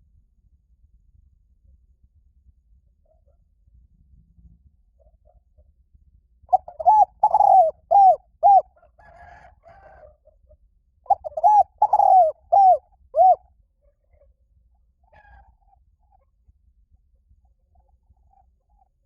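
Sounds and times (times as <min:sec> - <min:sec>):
dove cooing: 0:06.5 - 0:10.2, 0:11.1 - 0:14.2.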